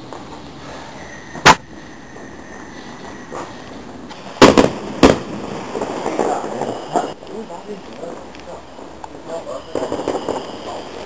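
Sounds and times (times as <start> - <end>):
fireworks bangs: 4.1 - 7.2, 9.4 - 11.0.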